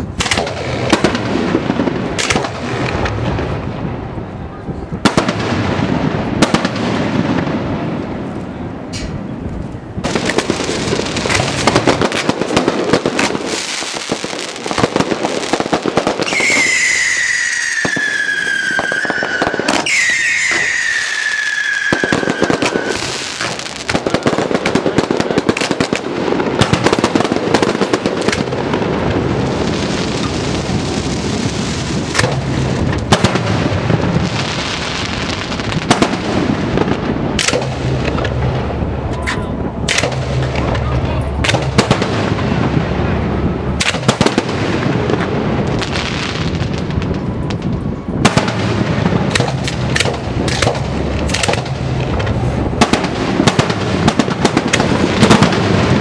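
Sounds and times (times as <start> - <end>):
fireworks barrage and crackling: 0.0 - 56.0
fireworks whistles falling in pitch: 16.0 - 23.6.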